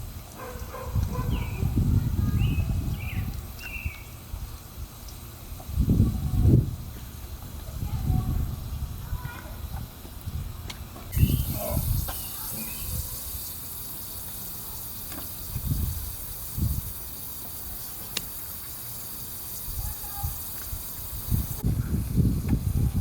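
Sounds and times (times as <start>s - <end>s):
hose spraying water on car: 0.0s - 23.0s.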